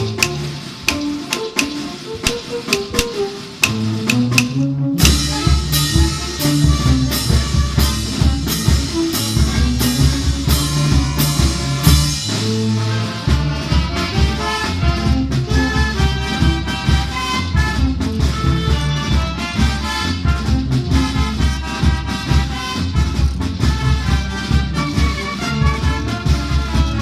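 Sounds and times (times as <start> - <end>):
band music with drum and bass: 0.0 - 27.0.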